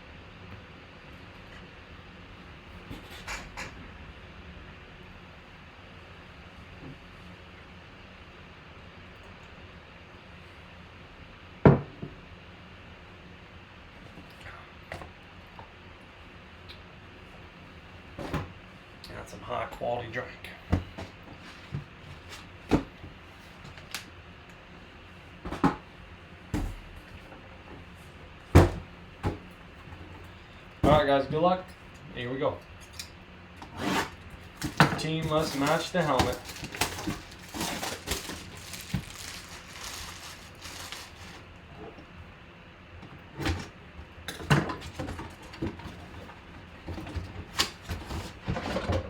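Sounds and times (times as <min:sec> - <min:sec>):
knocks scrapes and clatters: 0:33.6 - 0:41.4.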